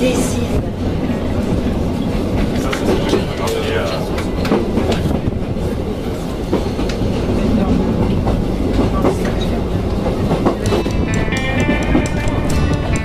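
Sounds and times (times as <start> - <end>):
train wheels rumbling on track: 0.0 - 13.0
wheels clacking over rail joints: 8.0 - 13.0
music: 10.6 - 13.0.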